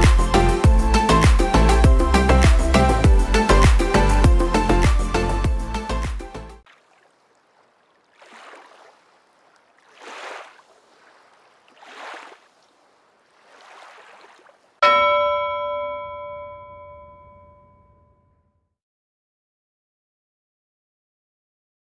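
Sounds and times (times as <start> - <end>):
bell chime ringing: 14.8 - 18.2.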